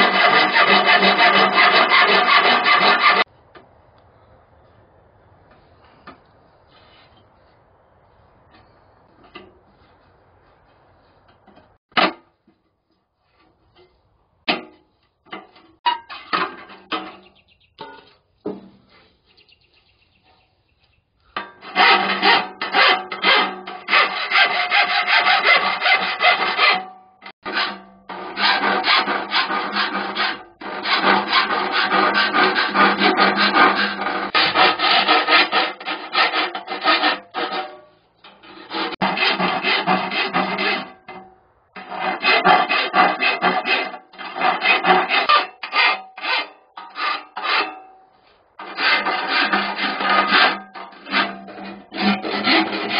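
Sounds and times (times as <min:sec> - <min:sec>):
hand tool filing steel: 0:00.0 - 0:03.3, 0:21.4 - 0:48.0, 0:48.6 - 0:52.9.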